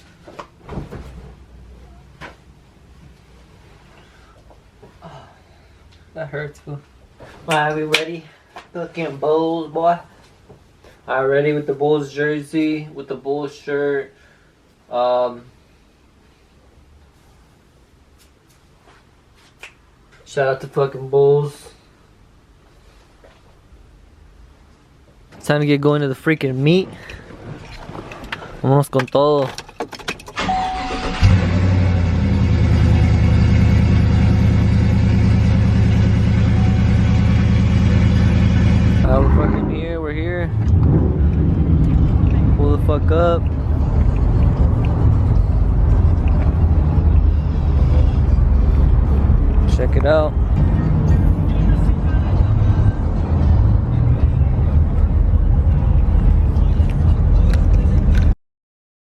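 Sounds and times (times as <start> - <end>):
truck engine idling: 30.8 - 58.0.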